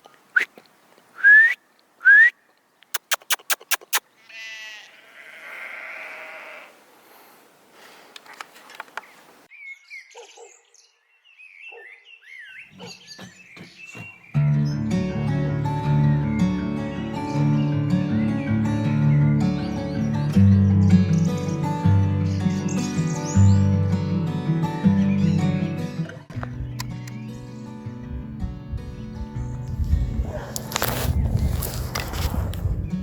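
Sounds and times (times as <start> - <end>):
small birds chirping: 2.4 - 4.3, 8.9 - 14.8, 26.4 - 28.2
sheep bleating: 4.1 - 6.8.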